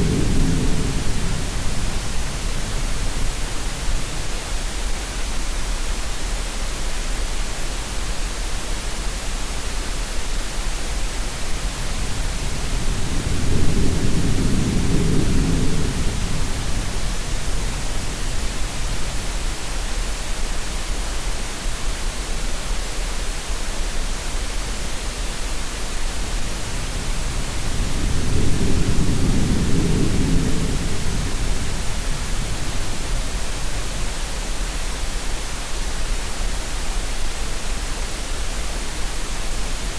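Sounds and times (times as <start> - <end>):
even hiss of green noise: 0.0 - 39.9
deep surging sea swells: 26.2 - 34.0.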